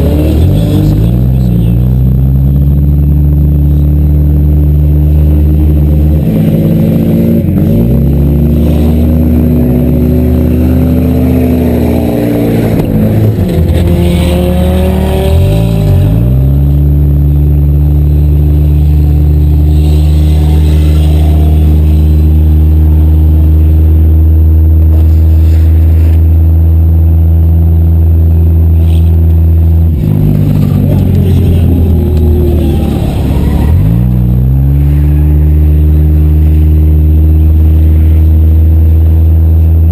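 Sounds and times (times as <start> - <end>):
loud car engines revving: 0.0 - 39.9.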